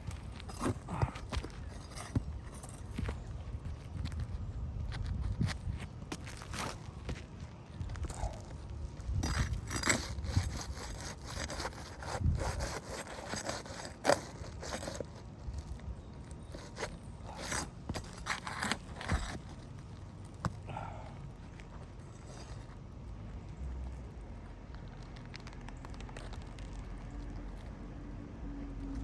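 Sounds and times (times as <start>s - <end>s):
hand tools scraping shingles: 0.0s - 4.1s, 8.0s - 20.9s.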